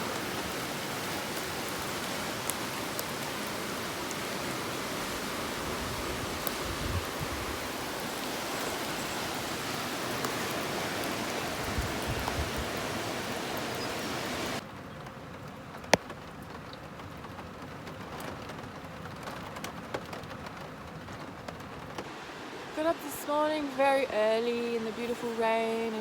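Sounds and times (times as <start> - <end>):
water drips: 0.0 - 14.6
steady rain: 0.0 - 26.0.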